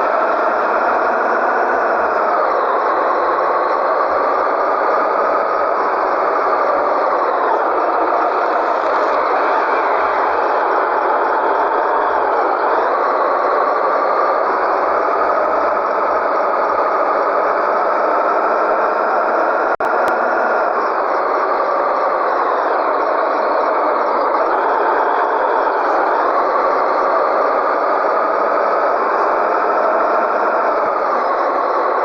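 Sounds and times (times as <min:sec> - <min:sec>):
diesel truck engine running: 0:00.0 - 0:32.0.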